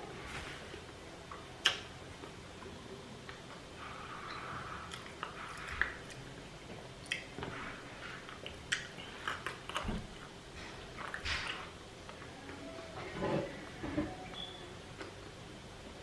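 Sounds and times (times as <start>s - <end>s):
person chewing food: 4.0s - 12.3s.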